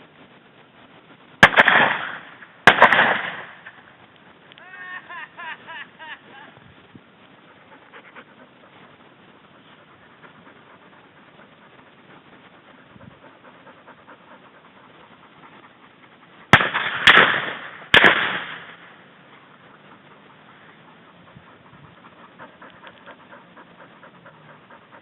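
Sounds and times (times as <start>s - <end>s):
shotgun shots with echo: 1.4s - 3.6s, 16.5s - 18.7s.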